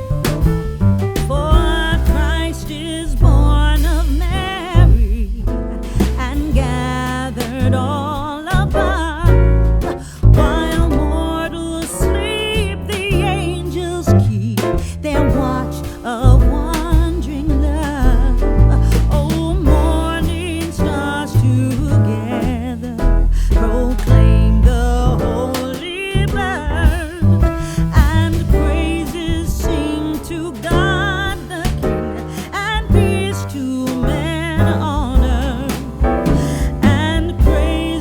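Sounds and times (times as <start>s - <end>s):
bass and steady beat: 0.0s - 38.0s
person singing with vibrato: 28.0s - 38.0s.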